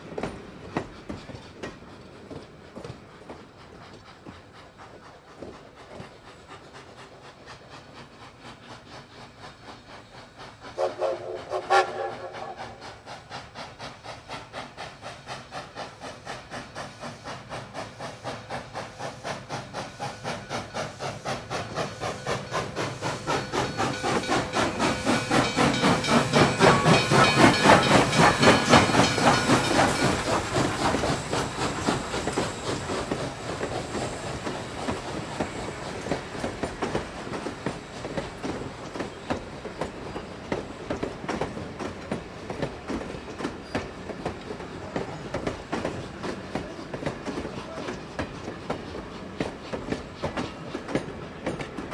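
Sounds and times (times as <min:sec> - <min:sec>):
steam locomotive exhaust beats: 0:00.0 - 0:51.9
steam locomotive whistle: 0:10.7 - 0:12.8.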